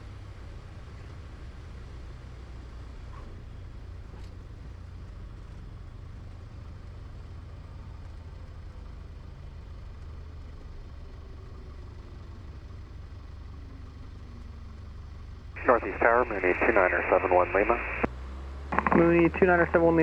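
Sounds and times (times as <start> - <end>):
aircraft engine droning: 11.5 - 20.0.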